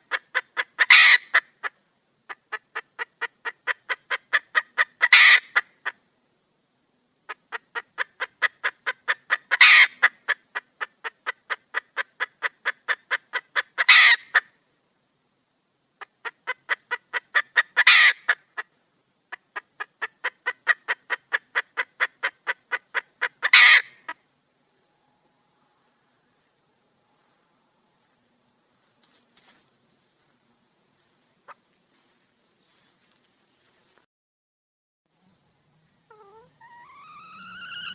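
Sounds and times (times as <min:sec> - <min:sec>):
hen cackling and squawking: 0:00.0 - 0:06.0, 0:07.3 - 0:14.5, 0:16.0 - 0:18.7, 0:19.3 - 0:24.2, 0:36.0 - 0:37.9.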